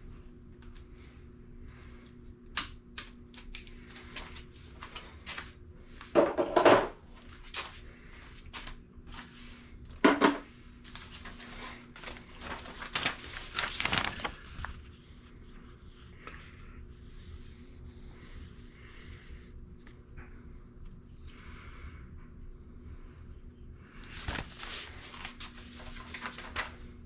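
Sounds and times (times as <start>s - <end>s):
low steady hum: 0.0s - 27.0s
objects knocking and clattering: 6.1s - 7.0s, 10.0s - 10.4s.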